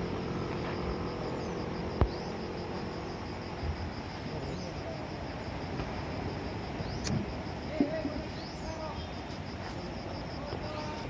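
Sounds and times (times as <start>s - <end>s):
insects chirping: 0.0s - 11.0s
sharp click: 7.0s - 7.2s.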